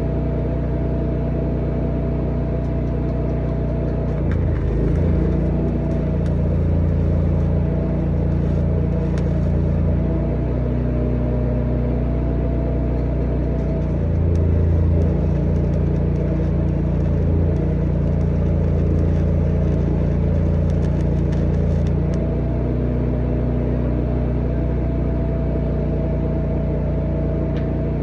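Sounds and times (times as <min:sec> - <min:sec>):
engine running: 0:00.0 - 0:28.0
faint crackling: 0:04.0 - 0:10.1, 0:13.4 - 0:22.2.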